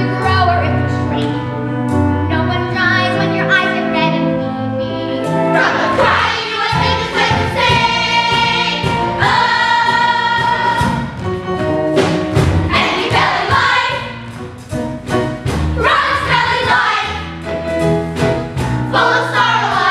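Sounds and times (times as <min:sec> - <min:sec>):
pit orchestra playing: 0:00.0 - 0:19.9
chorus singing: 0:05.5 - 0:11.2, 0:12.7 - 0:14.3, 0:15.8 - 0:17.4, 0:18.9 - 0:19.9.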